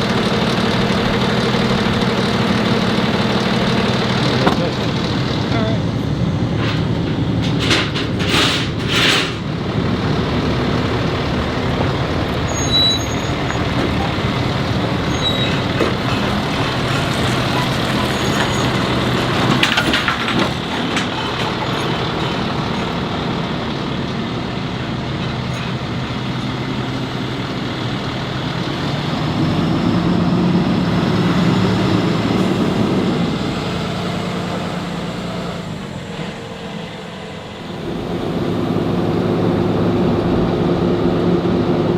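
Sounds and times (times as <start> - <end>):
heavy truck engine running: 0.0 - 41.9.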